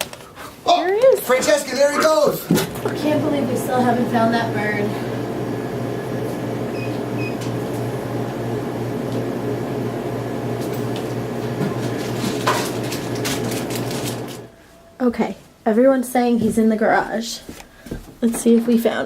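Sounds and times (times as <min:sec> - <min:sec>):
low mechanical hum: 0:02.6 - 0:15.7.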